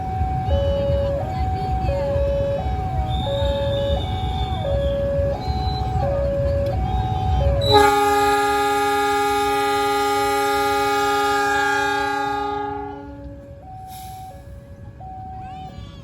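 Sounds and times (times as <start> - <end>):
train rumbling: 0.0 - 16.0
two-pitch warning tone: 2.0 - 8.6
locomotive horn blast: 7.6 - 13.6.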